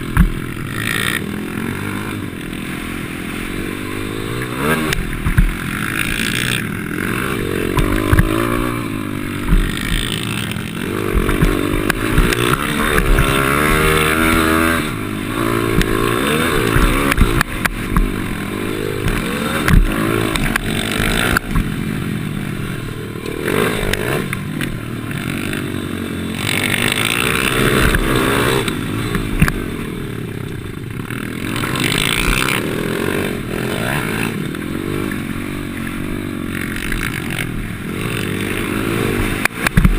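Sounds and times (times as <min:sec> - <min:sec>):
bike knocks and rattles: 0:00.0 - 0:01.2, 0:04.5 - 0:14.8, 0:15.6 - 0:18.3, 0:18.9 - 0:21.8, 0:39.2 - 0:39.9
motorbike engine revving: 0:00.0 - 0:39.9.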